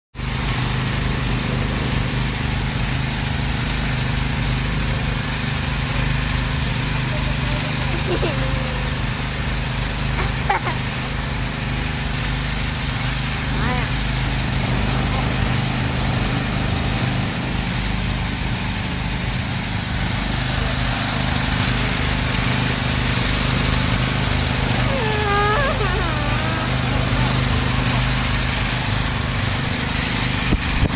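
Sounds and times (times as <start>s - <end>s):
small engine running: 0.2s - 30.9s
voice-like call: 24.5s - 28.4s.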